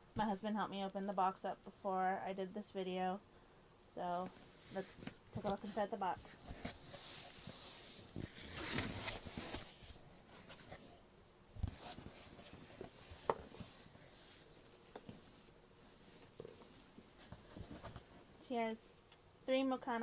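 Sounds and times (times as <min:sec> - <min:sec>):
packaging rustling and scraping: 0:04.4 - 0:11.0, 0:11.6 - 0:18.4.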